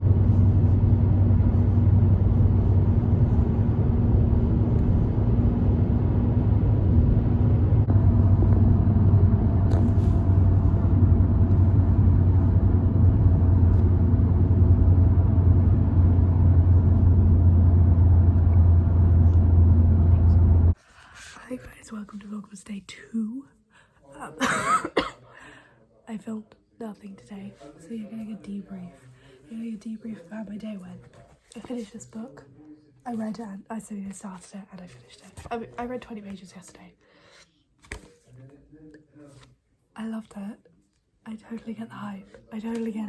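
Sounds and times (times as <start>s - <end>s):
car engine and road noise: 0.0s - 20.8s
constant low hum: 0.0s - 20.8s.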